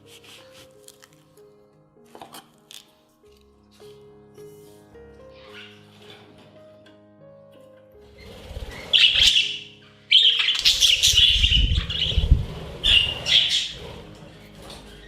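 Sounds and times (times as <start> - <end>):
soft background music: 0.0 - 15.0
budgies chirping and chattering: 5.3 - 6.0, 8.2 - 15.0.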